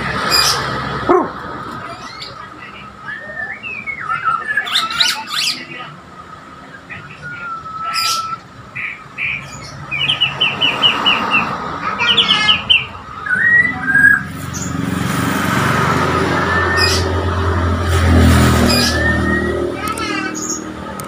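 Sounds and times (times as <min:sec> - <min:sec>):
bird singing chirps and whistles: 0:02.0 - 0:05.7, 0:06.9 - 0:10.6, 0:12.5 - 0:14.3, 0:18.6 - 0:19.8.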